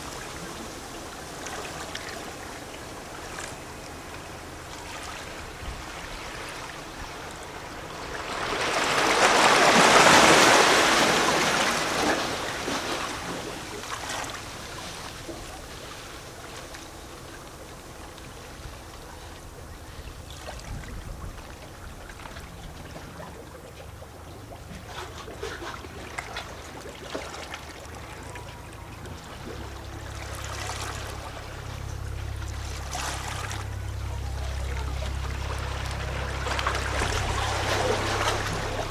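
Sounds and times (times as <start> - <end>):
low steady rumble: 0.0 - 38.9
waves lapping against rocks: 0.0 - 38.9
wave washing in: 29.2 - 38.9.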